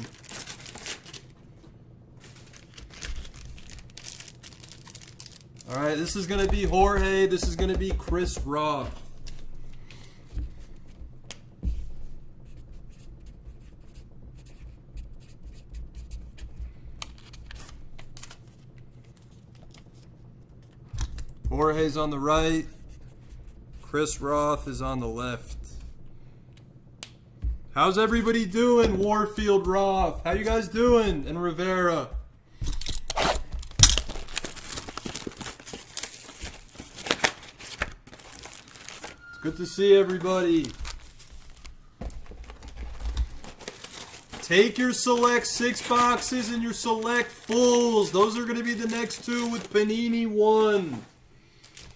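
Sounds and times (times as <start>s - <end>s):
packaging tearing sharply: 0.0s - 1.3s, 32.8s - 39.2s, 43.3s - 49.8s
hands rustling card packs: 0.0s - 12.5s, 16.0s - 51.9s.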